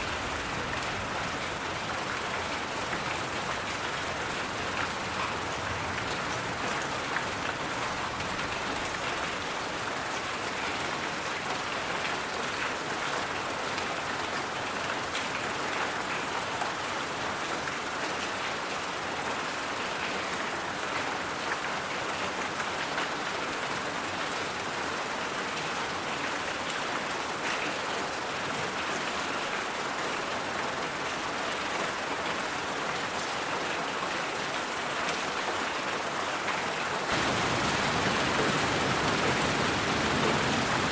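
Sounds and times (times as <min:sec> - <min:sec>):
white noise hiss: 0:37.1 - 0:40.9.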